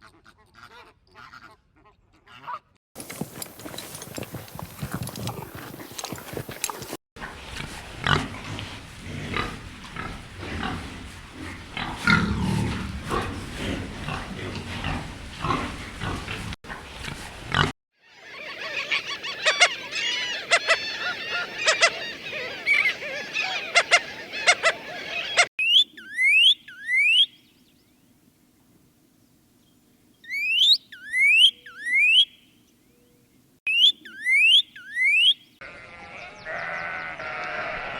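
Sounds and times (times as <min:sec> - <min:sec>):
high chirping calls: 0:18.2 - 0:27.6, 0:30.2 - 0:33.1, 0:33.7 - 0:35.6.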